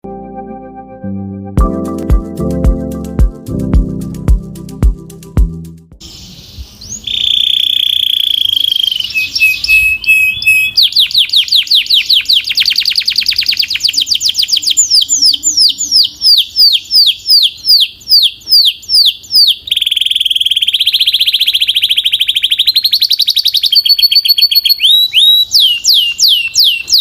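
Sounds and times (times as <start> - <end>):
canary singing: 6.1 - 27.0.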